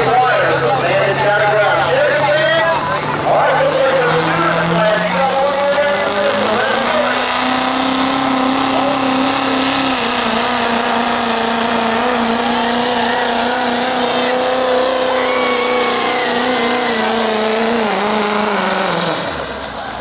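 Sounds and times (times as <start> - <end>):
diesel truck engine at full throttle: 0.0 - 20.0
turbo whistle: 2.4 - 7.1, 14.8 - 17.2.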